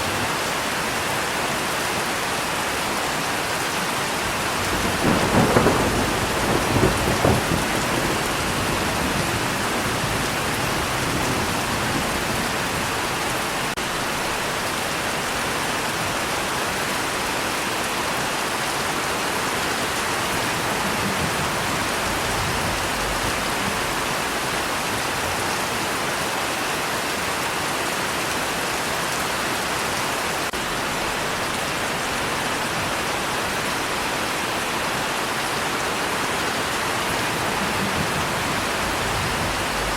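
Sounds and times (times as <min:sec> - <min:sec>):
heavy rain falling: 0:00.0 - 0:39.9
low roll of thunder: 0:04.3 - 0:14.4, 0:20.0 - 0:25.4, 0:36.8 - 0:39.9.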